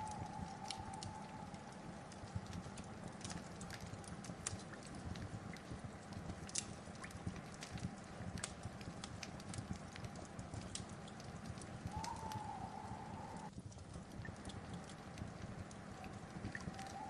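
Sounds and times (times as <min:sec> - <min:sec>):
faint high whistle: 0:00.0 - 0:01.6, 0:11.9 - 0:13.5
low rumble of flames: 0:00.0 - 0:17.0
wood fire crackling and popping: 0:00.0 - 0:17.0.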